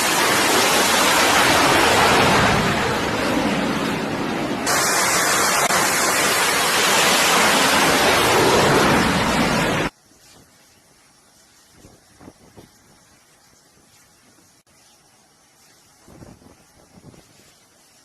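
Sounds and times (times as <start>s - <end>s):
loud rushing noise: 0.0s - 9.9s.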